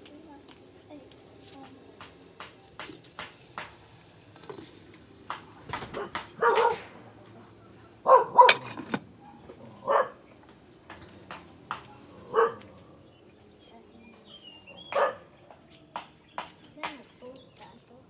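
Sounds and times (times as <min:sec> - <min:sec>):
dog barking: 0:05.9 - 0:06.9, 0:08.0 - 0:08.6, 0:09.2 - 0:10.2, 0:12.2 - 0:12.8, 0:14.9 - 0:15.3.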